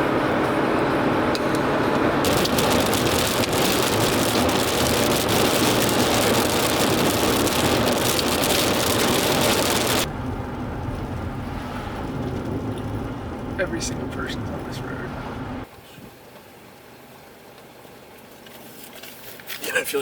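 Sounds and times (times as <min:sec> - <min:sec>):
vehicle road rumble: 0:00.0 - 0:16.6
heavy rain on car roof: 0:02.2 - 0:10.1.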